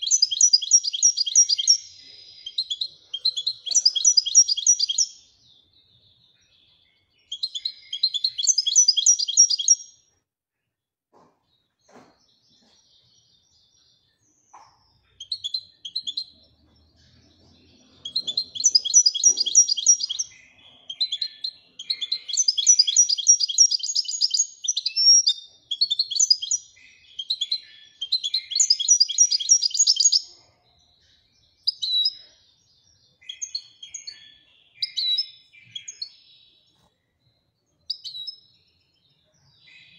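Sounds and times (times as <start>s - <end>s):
goldfinch twittering trills: 0.0s - 5.2s, 7.2s - 9.8s, 17.1s - 30.3s.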